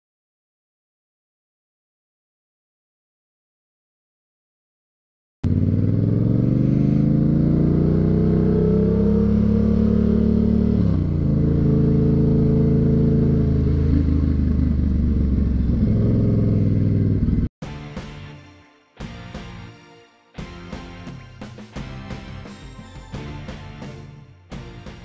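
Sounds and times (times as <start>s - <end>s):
motorcycle engine accelerating: 5.4s - 17.5s.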